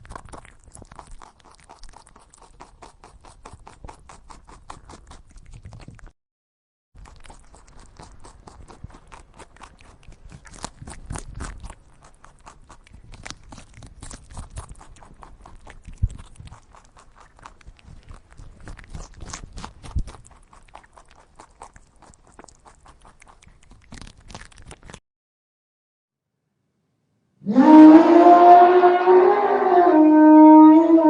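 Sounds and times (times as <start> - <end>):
animals crunching and rustling: 0.0 - 6.1, 7.0 - 25.0.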